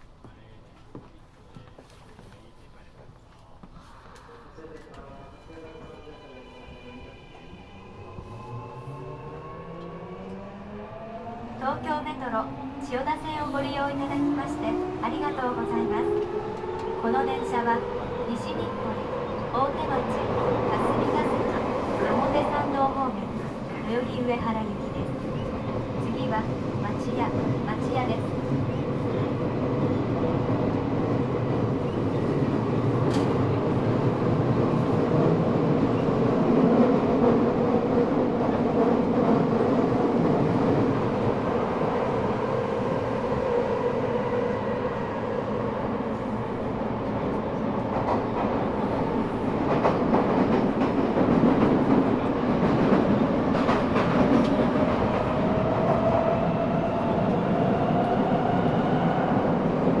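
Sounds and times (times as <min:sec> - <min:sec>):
rail-joint clicks: 0:33.0 - 0:33.5.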